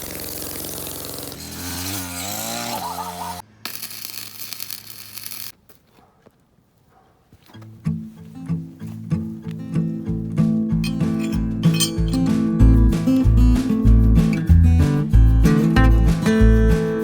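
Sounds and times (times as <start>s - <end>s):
power tool cutting steel rail: 0.0s - 5.5s.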